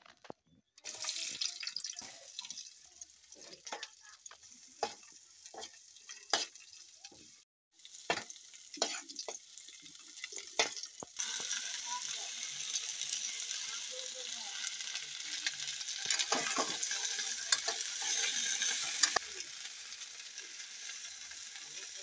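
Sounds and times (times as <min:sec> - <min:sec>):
vegetables sizzling in oil: 0:00.8 - 0:22.0
spatula scraping and knocking pan: 0:04.8 - 0:07.2, 0:16.1 - 0:19.2.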